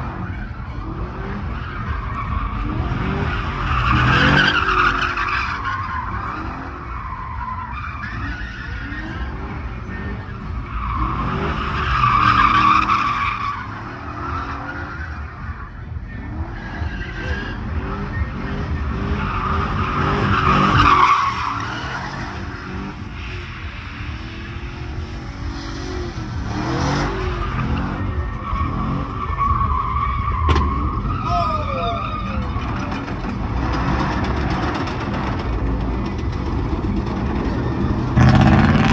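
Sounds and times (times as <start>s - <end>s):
truck engine revving: 0.0s - 31.2s, 32.1s - 38.9s
tires squealing: 0.0s - 38.9s.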